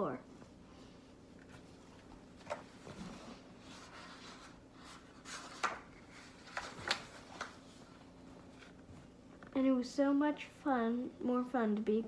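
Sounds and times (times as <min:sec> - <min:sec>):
paper rustling: 0:02.4 - 0:08.8
page turning scrapes and taps: 0:03.9 - 0:07.6.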